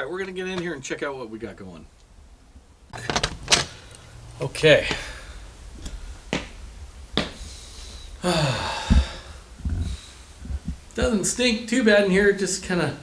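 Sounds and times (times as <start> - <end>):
falling creaking sound: 2.9 - 4.1.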